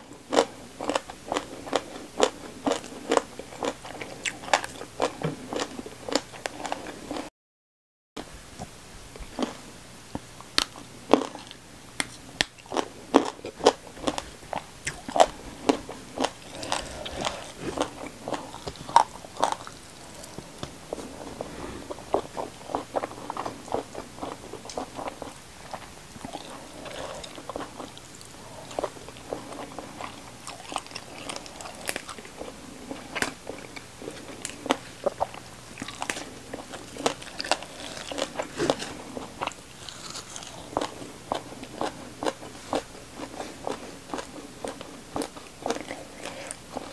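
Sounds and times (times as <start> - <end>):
wet chewing: 10.6 - 46.9.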